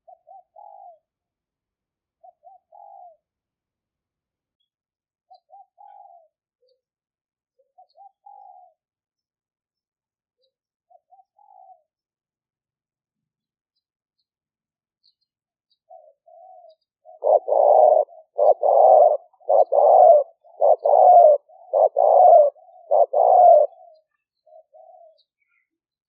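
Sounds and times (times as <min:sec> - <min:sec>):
dove cooing: 0:00.0 - 0:01.1, 0:02.2 - 0:03.2, 0:05.3 - 0:06.8, 0:07.6 - 0:08.8, 0:10.9 - 0:12.0, 0:15.9 - 0:25.7.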